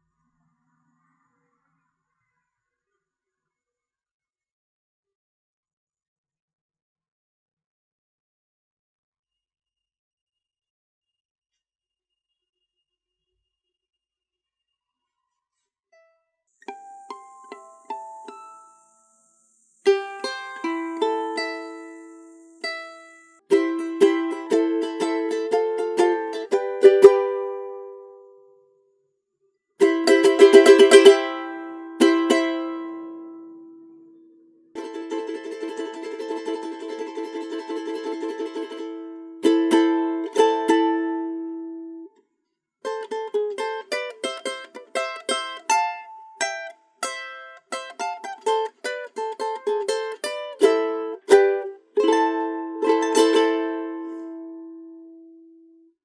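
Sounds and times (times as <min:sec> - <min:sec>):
small guitar picked melody: 0:16.7 - 0:19.1, 0:19.9 - 0:28.6, 0:29.8 - 0:42.2, 0:42.9 - 0:55.8
small guitar strumming: 0:16.7 - 0:19.1, 0:19.9 - 0:28.5, 0:29.8 - 0:34.2, 0:34.8 - 0:42.1, 0:42.9 - 0:55.5.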